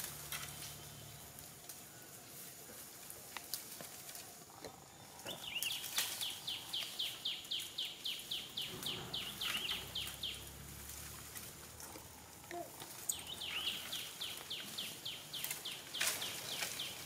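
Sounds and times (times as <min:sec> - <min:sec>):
dry leaves rustling: 0:00.0 - 0:17.0
bird chirping: 0:04.6 - 0:11.2, 0:11.8 - 0:17.0.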